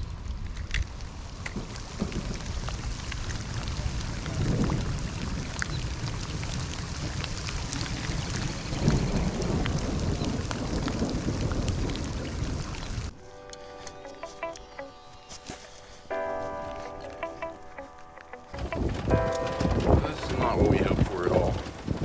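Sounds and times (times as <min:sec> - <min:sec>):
heavy rain pouring: 0:00.0 - 0:13.1, 0:18.6 - 0:22.0
music: 0:13.1 - 0:21.8
low rumbling swells: 0:18.6 - 0:22.0.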